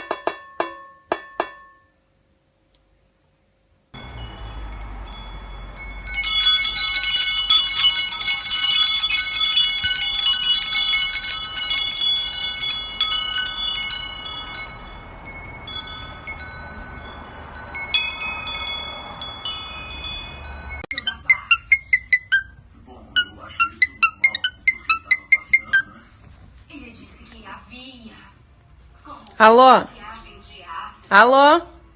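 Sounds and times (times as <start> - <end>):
metal chimes jangling: 4.0 - 20.9.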